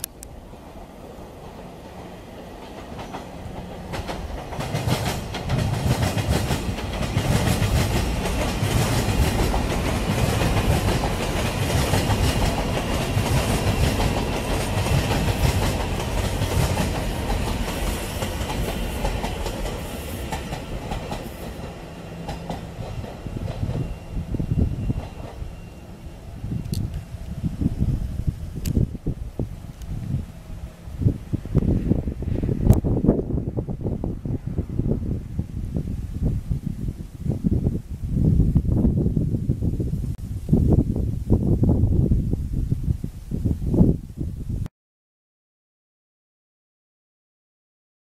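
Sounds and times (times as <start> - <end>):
train wheels clattering over rails: 1.4 - 25.7.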